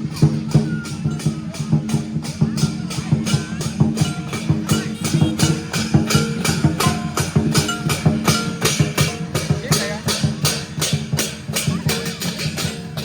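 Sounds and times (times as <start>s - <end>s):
cymbals and drum beating: 0.0s - 13.0s
melody over percussion: 0.0s - 13.0s.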